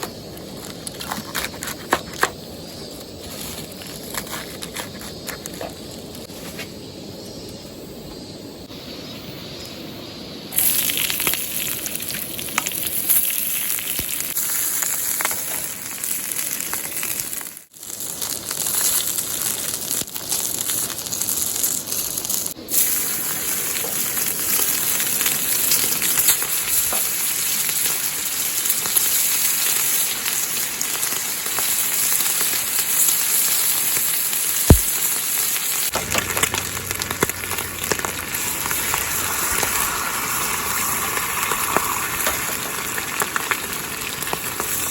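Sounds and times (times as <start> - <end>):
oil sizzling in frying pan: 10.5 - 44.9
sharp tap: 34.7 - 34.9.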